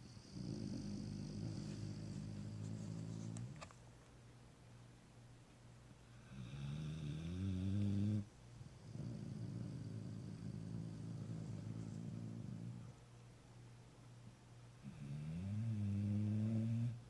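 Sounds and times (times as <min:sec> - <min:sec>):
dog snoring: 0:00.0 - 0:03.6, 0:06.2 - 0:13.0, 0:14.8 - 0:17.0.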